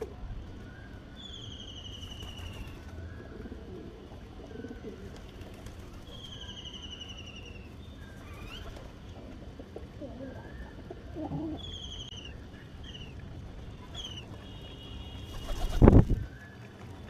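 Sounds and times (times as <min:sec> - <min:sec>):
soft low bird calls: 0:09.9 - 0:16.8.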